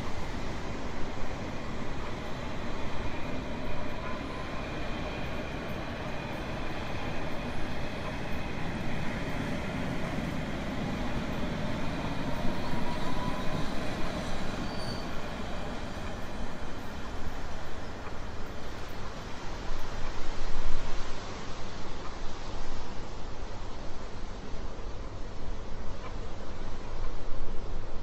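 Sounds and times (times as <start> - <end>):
train rumbling on rails: 0.0 - 28.0.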